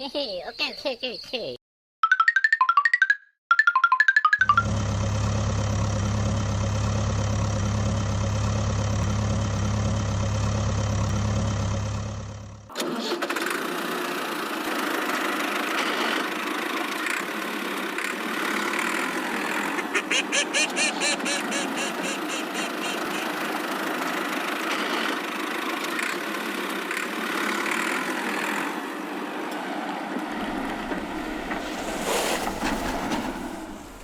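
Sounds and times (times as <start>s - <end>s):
engine running with deep hum: 4.4s - 12.7s, 21.0s - 34.0s
thin rattling engine: 4.4s - 29.2s.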